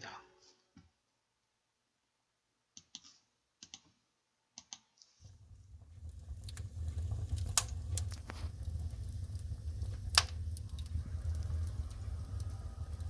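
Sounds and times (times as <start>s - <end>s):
wood fire crackling: 5.2s - 13.0s
steady low rumble: 5.3s - 13.0s
sharp crack: 6.4s - 13.0s.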